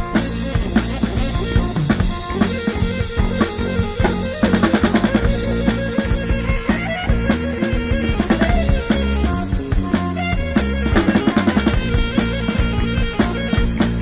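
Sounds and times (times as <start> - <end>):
band playing a song: 0.0 - 14.0
fast drum fill: 0.0 - 14.0.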